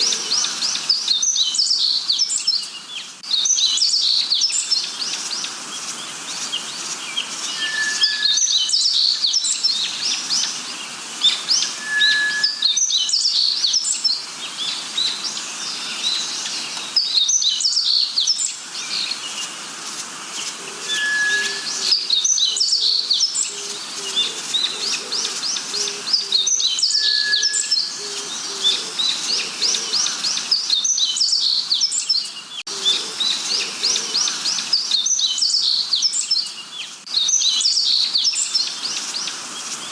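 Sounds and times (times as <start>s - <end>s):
songbirds chirping: 0.0s - 39.9s
short clear whistle: 20.9s - 21.8s.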